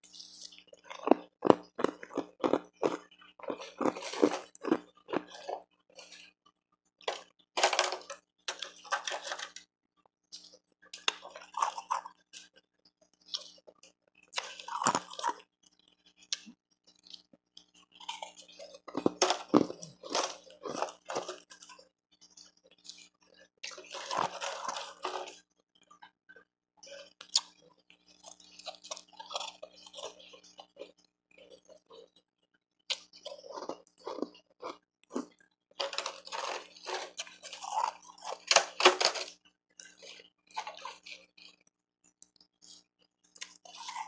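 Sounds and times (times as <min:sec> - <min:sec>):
mouth crunching ice: 0:00.8 - 0:05.6, 0:18.1 - 0:21.4, 0:33.3 - 0:39.3.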